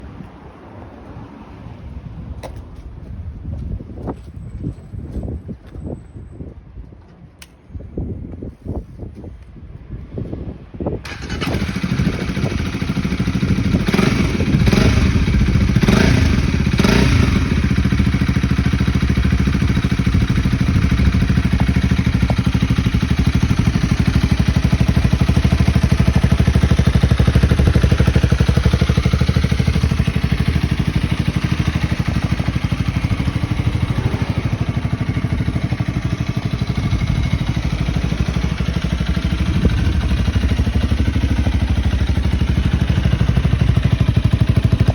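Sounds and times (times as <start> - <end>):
motorcycle engine starting and idling: 11.0 - 44.9.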